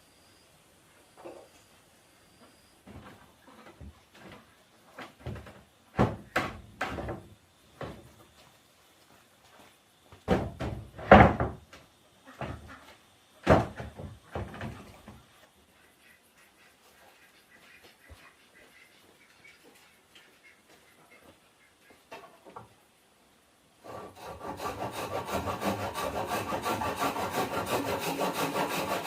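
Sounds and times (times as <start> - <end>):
objects knocking and scraping: 13.4 - 15.2.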